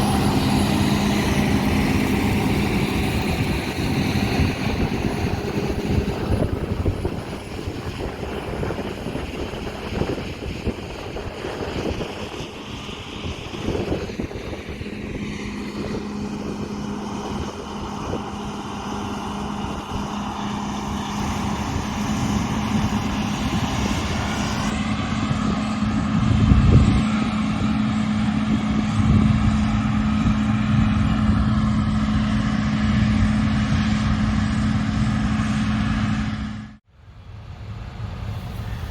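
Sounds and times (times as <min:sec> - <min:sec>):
tractor engine: 0:00.0 - 0:24.7
low rumble: 0:00.0 - 0:24.8, 0:37.0 - 0:38.9
combine harvester engine: 0:00.0 - 0:38.9.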